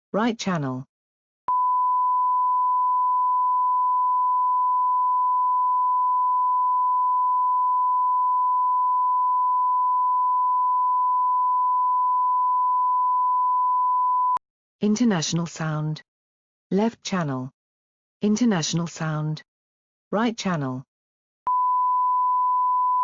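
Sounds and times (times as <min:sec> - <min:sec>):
sine-wave reference tone: 0:01.5 - 0:14.4, 0:21.5 - 0:23.0.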